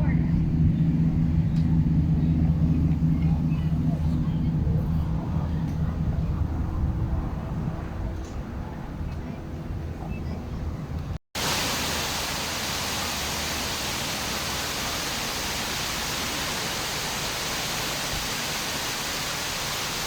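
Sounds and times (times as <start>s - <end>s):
low rumble: 0.0s - 9.0s
waterfall rushing: 11.4s - 20.0s.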